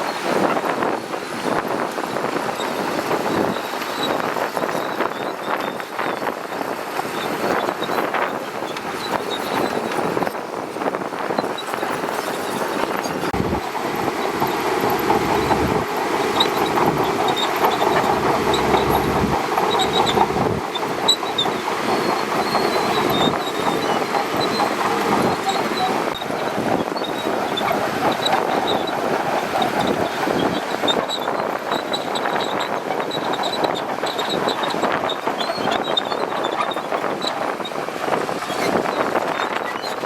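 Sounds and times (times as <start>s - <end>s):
steel tracks clanking and squealing: 0.0s - 40.0s
bulldozer diesel engine running: 5.7s - 40.0s
short high squeaks: 14.1s - 29.0s, 29.8s - 40.0s.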